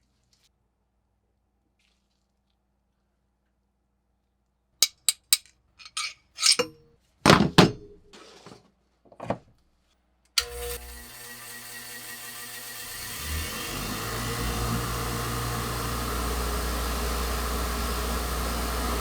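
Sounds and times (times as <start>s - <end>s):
metal tool parts clinking: 4.8s - 8.0s
power tool motor running: 10.4s - 19.0s.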